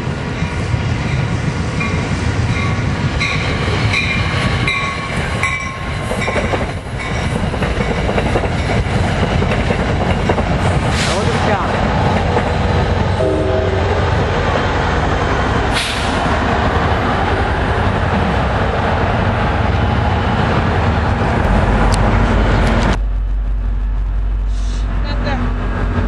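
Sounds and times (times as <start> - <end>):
train wheels rumbling on rail: 0.0 - 26.0
brief tonal note: 13.2 - 14.2
low hum: 21.0 - 26.0.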